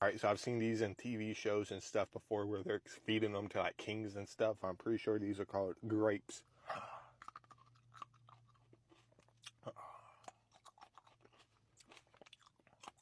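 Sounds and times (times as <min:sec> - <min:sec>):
chewing grapes: 0:07.0 - 0:13.0.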